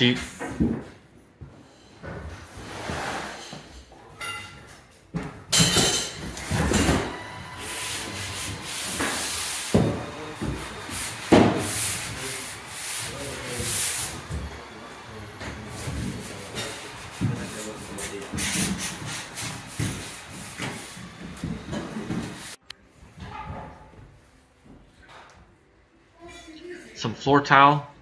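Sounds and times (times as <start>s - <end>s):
sanding scraping strokes: 7.5s - 14.4s, 15.6s - 21.4s.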